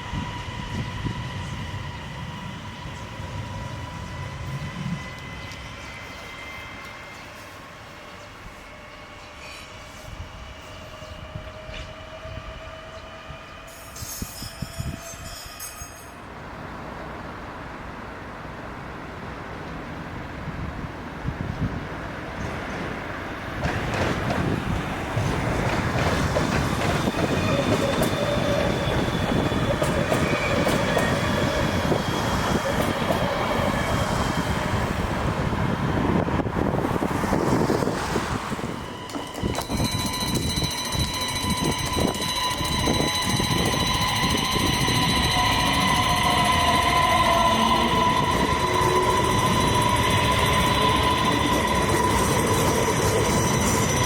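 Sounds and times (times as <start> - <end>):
electric train whining: 0.0 - 17.1, 22.4 - 54.0
wheel and rail rumble: 0.0 - 54.0
thin high whine: 38.6 - 54.0
wheels clicking over rail joints: 38.6 - 54.0.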